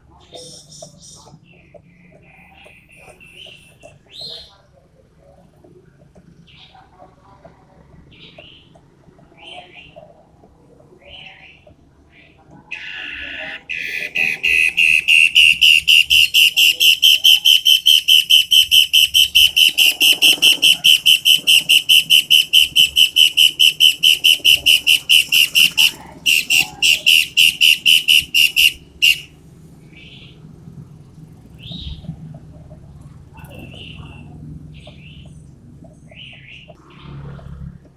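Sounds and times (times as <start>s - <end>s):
songbird singing repeated notes: 0.0s - 7.2s, 8.0s - 32.8s, 33.4s - 37.2s.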